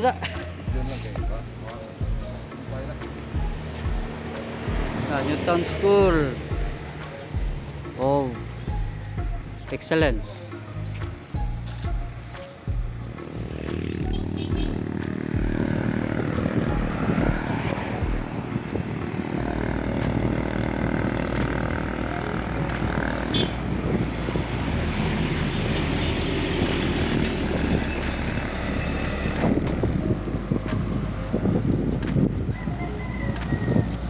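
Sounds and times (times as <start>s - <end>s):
road noise: 0.0s - 34.0s
wind rushing over microphone: 12.9s - 34.0s.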